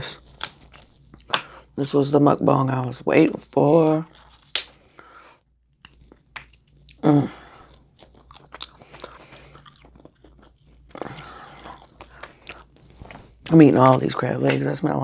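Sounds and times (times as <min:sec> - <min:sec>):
small crunches: 0:00.0 - 0:01.6, 0:03.3 - 0:05.1, 0:05.8 - 0:14.6
lip smacking: 0:05.8 - 0:13.5
chewing: 0:05.8 - 0:14.5.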